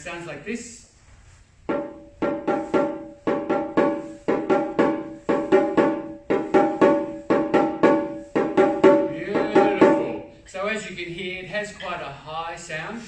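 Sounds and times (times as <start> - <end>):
small drum struck with sticks: 1.7 - 10.3.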